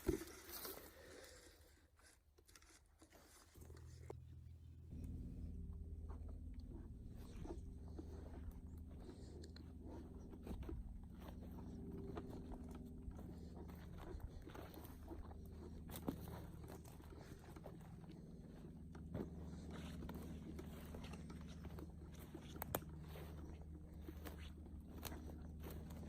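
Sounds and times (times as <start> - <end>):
faint low hum: 0.0 - 26.0
footsteps on forest floor: 5.9 - 26.0.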